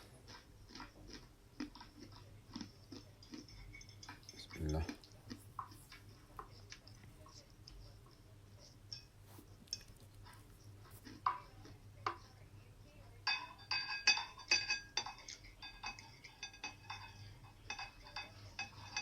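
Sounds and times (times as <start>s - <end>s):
cutlery clinking on a plate: 2.6s - 7.4s, 8.9s - 12.3s, 13.2s - 19.0s.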